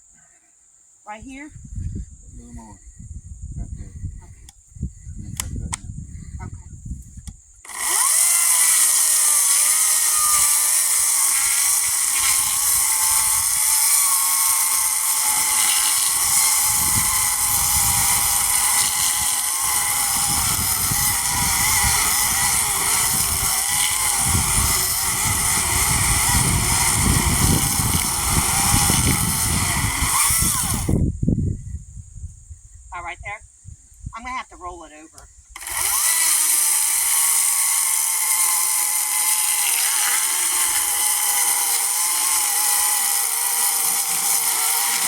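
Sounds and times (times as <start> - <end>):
chainsaw cutting log: 7.6 - 31.0, 35.6 - 45.0.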